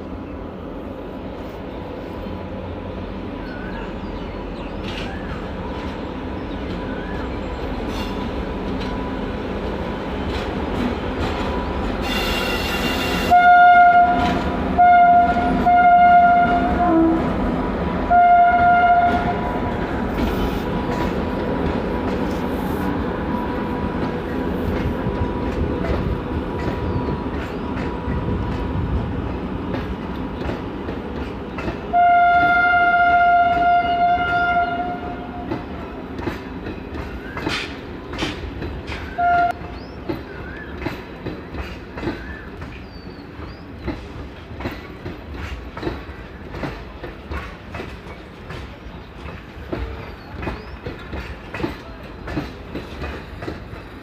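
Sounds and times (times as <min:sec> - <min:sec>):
train wheels clicking over rail joints: 0:04.6 - 0:13.4, 0:19.0 - 0:32.6, 0:33.3 - 0:54.0
train horn blast: 0:12.0 - 0:17.4, 0:18.0 - 0:19.6, 0:31.9 - 0:35.6, 0:39.2 - 0:39.6.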